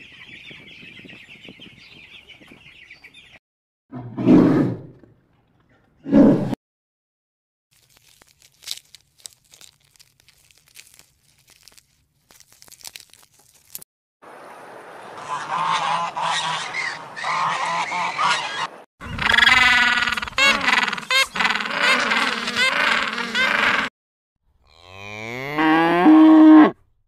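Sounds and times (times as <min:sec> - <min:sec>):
waterfowl honking: 0:15.1 - 0:23.9
penguins braying: 0:15.3 - 0:23.9.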